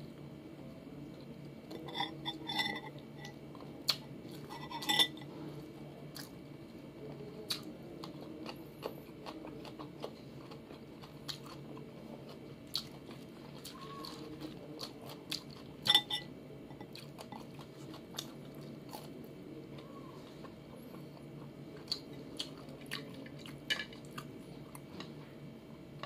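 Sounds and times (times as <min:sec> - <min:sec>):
dishes clinking: 0:01.7 - 0:03.4, 0:04.4 - 0:05.3, 0:15.8 - 0:17.5
chewing and crunching food: 0:07.0 - 0:25.4.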